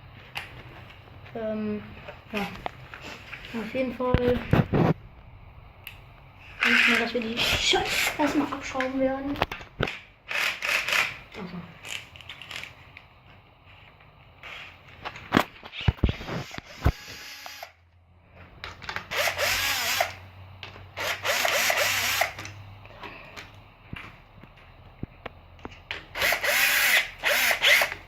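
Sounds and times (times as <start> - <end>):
cordless drill whining: 6.6 - 8.3, 15.9 - 17.8, 19.1 - 20.2, 21.0 - 22.5, 26.2 - 28.0.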